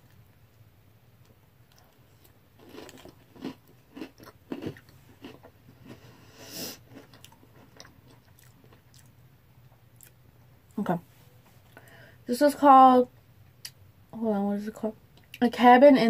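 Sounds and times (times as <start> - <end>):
person crunching cereal: 1.8 - 6.1.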